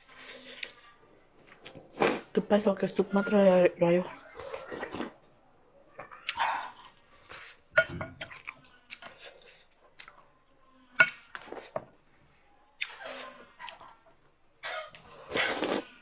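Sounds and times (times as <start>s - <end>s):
person chewing noodles: 0.0s - 0.8s, 1.6s - 2.3s, 4.3s - 5.2s, 6.0s - 10.3s, 11.0s - 11.7s, 12.8s - 14.0s, 14.8s - 16.0s
utensil clinking bowl: 7.7s - 8.4s.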